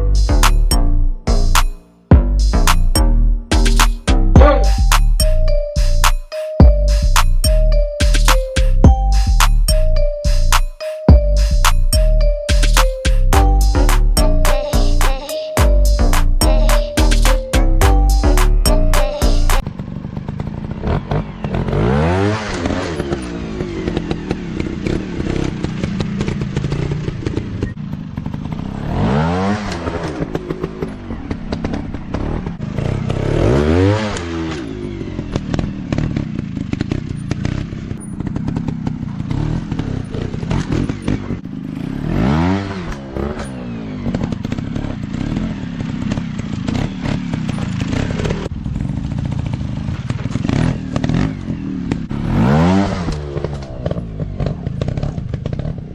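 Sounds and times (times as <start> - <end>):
dirt bike engine revving: 15.8 - 55.9
clatter and scraping: 42.8 - 48.5, 53.0 - 55.9.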